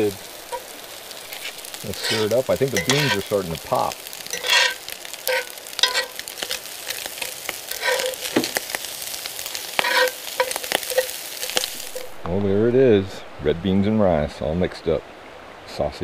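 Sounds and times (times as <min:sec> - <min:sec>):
utensil scraping pan: 0:00.0 - 0:12.1
beans popping: 0:00.0 - 0:12.2
food sizzling in skillet: 0:00.0 - 0:12.7.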